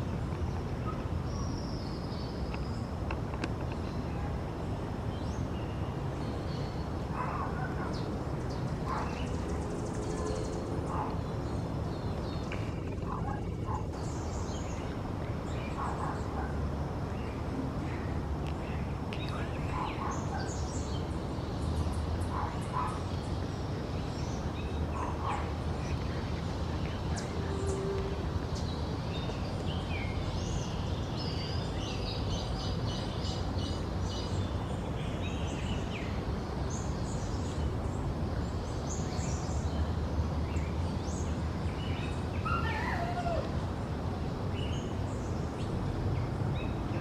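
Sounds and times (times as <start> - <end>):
birds chirping: 0.0 - 47.0
low background noise: 0.0 - 47.0.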